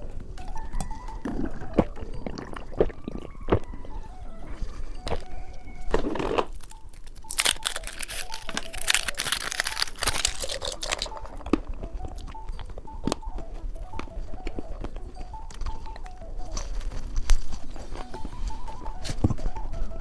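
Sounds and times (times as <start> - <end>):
plastic packaging crinkling: 5.8 - 11.7.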